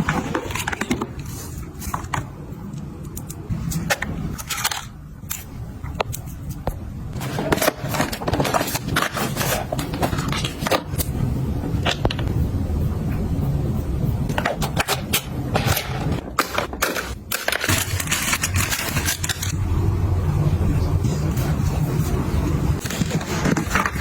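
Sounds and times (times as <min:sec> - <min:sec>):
objects clicking and scraping: 0:00.0 - 0:11.2, 0:14.3 - 0:19.6
steady low rumble: 0:01.5 - 0:24.0.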